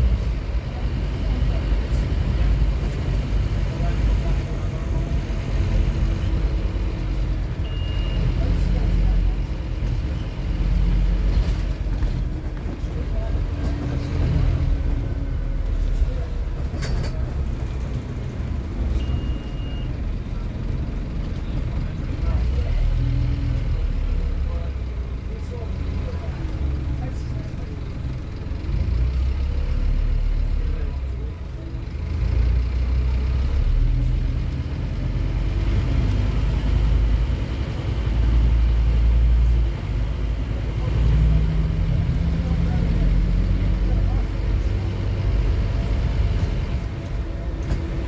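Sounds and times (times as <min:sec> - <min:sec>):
diesel bus engine rumbling: 0:00.0 - 0:48.0
brief high beep: 0:07.6 - 0:08.3, 0:19.0 - 0:19.9.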